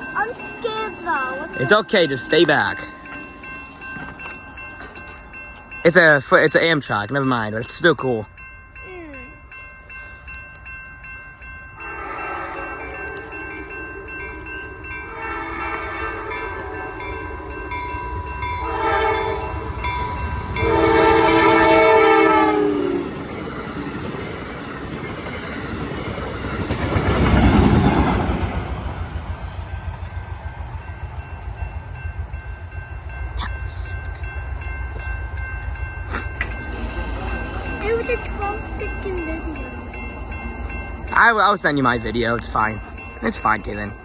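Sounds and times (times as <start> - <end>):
train rushing past: 0.0 - 8.3, 10.6 - 44.0
wheels clacking on rails: 0.0 - 8.6, 9.5 - 44.0
train horn blasts: 11.8 - 13.5, 15.0 - 17.0, 18.6 - 19.6, 20.6 - 23.1.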